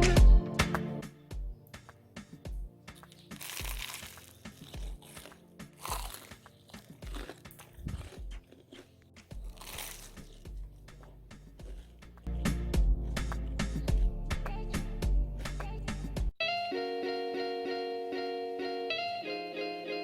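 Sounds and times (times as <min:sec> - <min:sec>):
quiet background music with beat: 0:00.0 - 0:17.2
crunching and rustling handling: 0:03.0 - 0:12.0.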